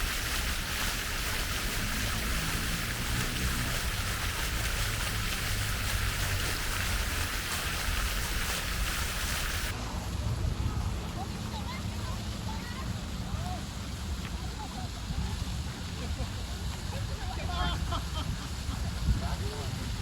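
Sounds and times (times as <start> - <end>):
steady rushing noise: 0.0 - 13.9.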